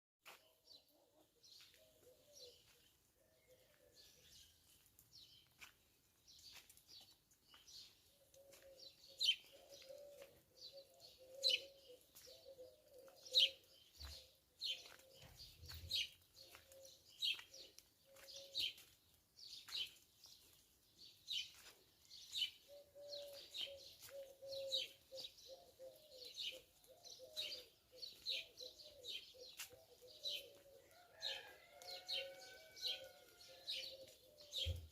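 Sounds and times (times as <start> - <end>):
small birds chirping: 0.2 - 34.9
dove cooing: 9.4 - 13.7, 22.7 - 34.7.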